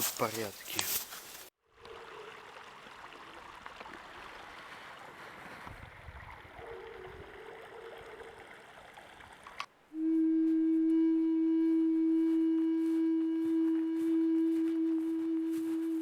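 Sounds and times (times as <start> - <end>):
running water: 0.0 - 9.9.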